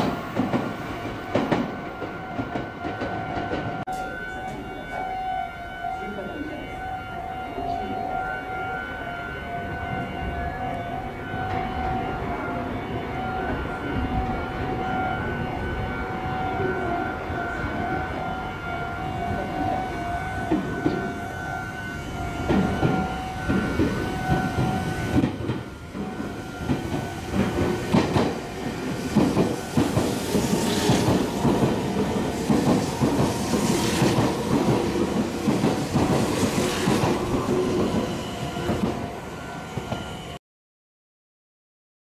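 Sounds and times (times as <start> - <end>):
electric train passing: 0.0 - 40.4
train wheels clacking over rail joints: 22.4 - 39.0.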